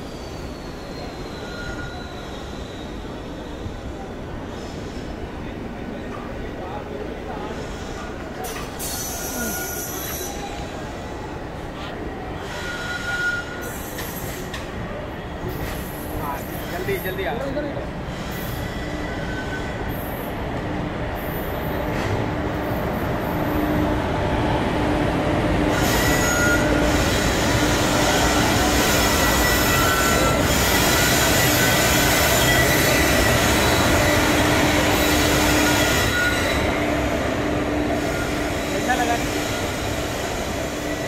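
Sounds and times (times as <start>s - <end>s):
high wheel squeal: 0.0s - 5.0s, 7.6s - 11.2s, 12.4s - 14.6s, 18.1s - 20.3s, 25.7s - 41.0s
train wheels rumbling on rail: 0.0s - 41.0s.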